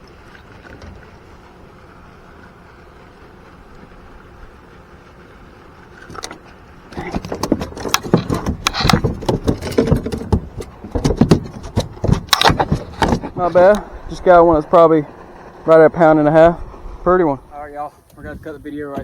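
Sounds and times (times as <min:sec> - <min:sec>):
fish clattering in a boat: 0:06.0 - 0:13.8
wind noise: 0:16.4 - 0:19.0.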